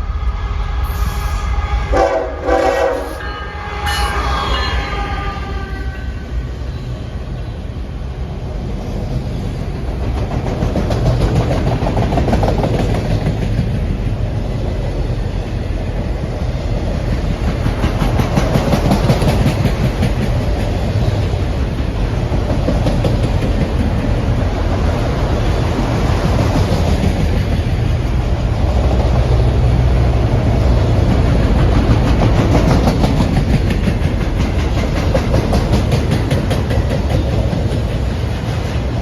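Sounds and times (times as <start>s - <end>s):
freight train rumbling past: 0.0s - 39.0s
wheels clicking over rail joints: 9.5s - 28.6s, 31.0s - 39.0s.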